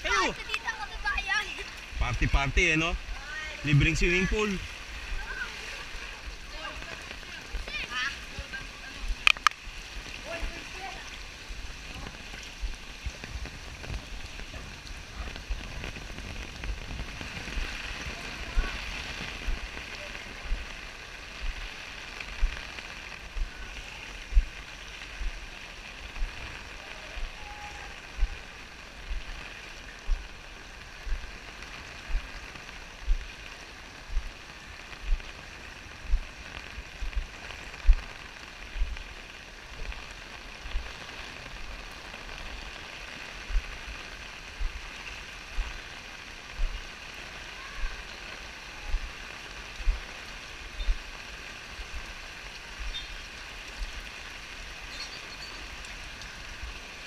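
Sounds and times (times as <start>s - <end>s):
rain hissing: 0.0s - 57.0s
short low thumps: 24.3s - 24.6s, 28.2s - 28.4s, 31.0s - 31.3s, 33.0s - 33.3s, 34.1s - 34.3s, 35.0s - 35.3s, 36.0s - 36.3s, 37.0s - 38.1s.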